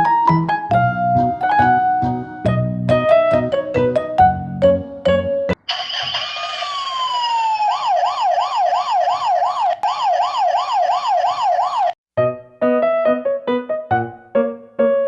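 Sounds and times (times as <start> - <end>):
emergency siren wailing: 5.6 - 12.0.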